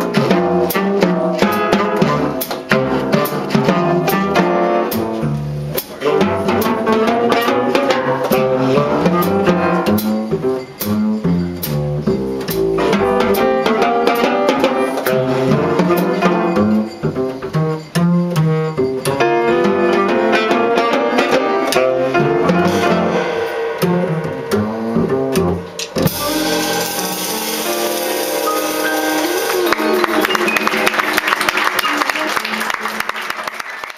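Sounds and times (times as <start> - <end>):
drum and cymbal strikes: 0.0 - 30.6
live jazz quartet playing: 0.0 - 33.6
audience applause: 29.0 - 33.9.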